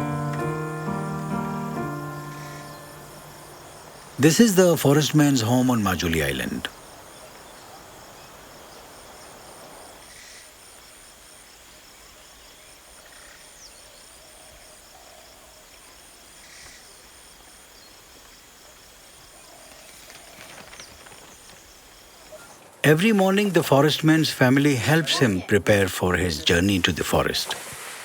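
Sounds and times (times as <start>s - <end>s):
insects pulsing chorus: 0.0s - 28.0s.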